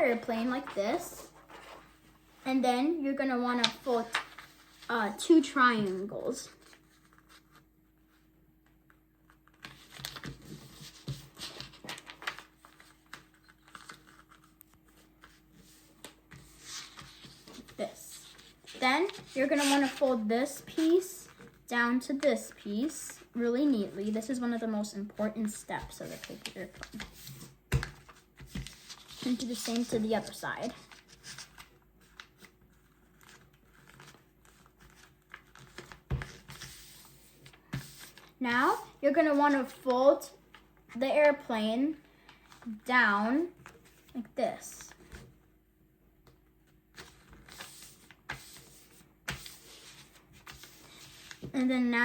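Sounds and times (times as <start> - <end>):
paper folded and creased: 0.6 - 2.0, 3.6 - 4.9, 9.3 - 20.1, 25.8 - 38.3, 46.9 - 51.5.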